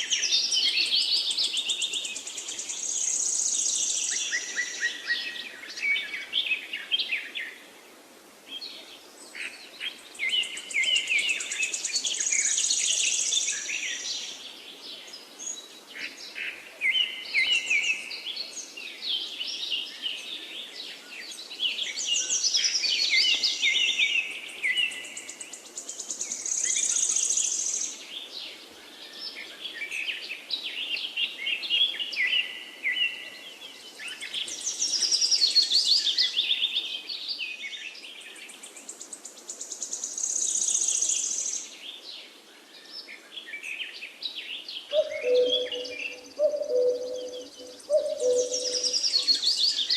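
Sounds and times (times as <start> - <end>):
faint steady hiss: 0.0 - 49.9
songbirds chirping and trilling: 0.0 - 49.9.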